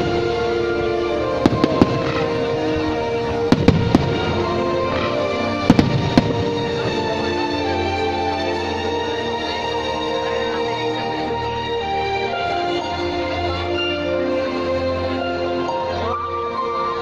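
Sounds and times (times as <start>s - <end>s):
background music: 0.0s - 17.0s
fireworks banging: 1.2s - 7.6s.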